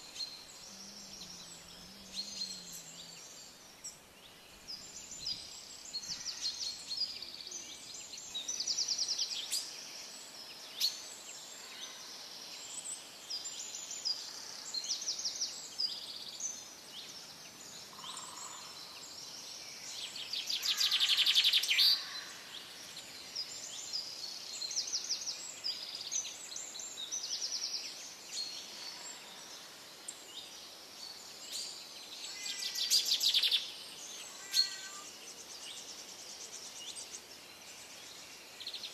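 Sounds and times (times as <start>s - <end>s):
birds chirping and singing: 0.0s - 9.7s, 32.5s - 35.9s
long trilling bird call: 0.2s - 4.1s, 34.3s - 35.1s.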